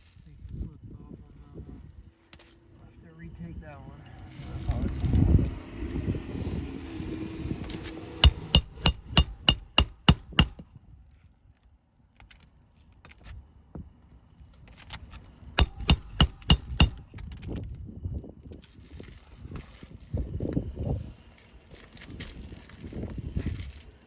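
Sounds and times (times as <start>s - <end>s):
hammer driving nails with metallic ring: 8.2s - 10.6s, 15.6s - 17.3s.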